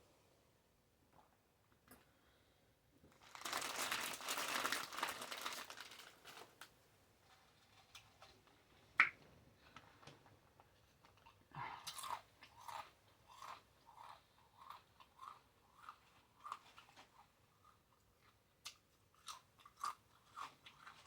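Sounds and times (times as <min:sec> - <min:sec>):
paper wrapper crinkling: 0:03.1 - 0:06.7.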